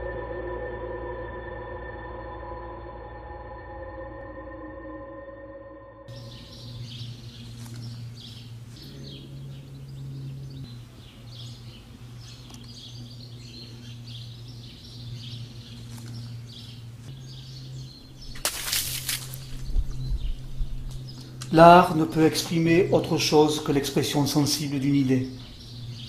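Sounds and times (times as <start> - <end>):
steady low hum: 0.0 - 26.0
small birds chirping: 6.1 - 26.0.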